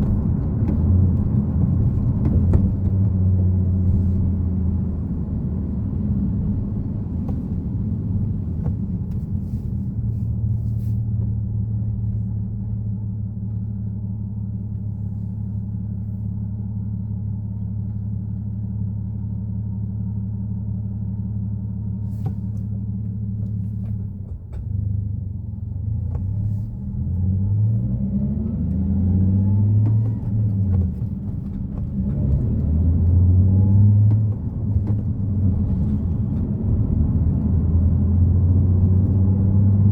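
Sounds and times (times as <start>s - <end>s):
car engine accelerating: 0.0s - 13.6s, 22.0s - 39.9s.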